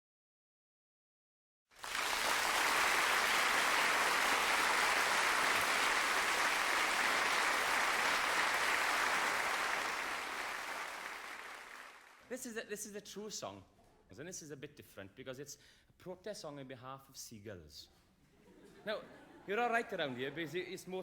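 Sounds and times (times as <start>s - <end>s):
audience applause: 1.8s - 12.2s.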